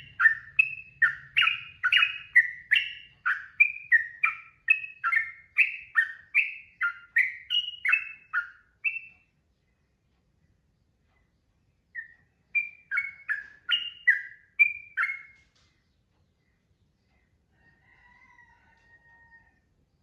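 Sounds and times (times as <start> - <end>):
bulbul singing chirpy notes: 0.0 - 9.1, 12.0 - 15.4.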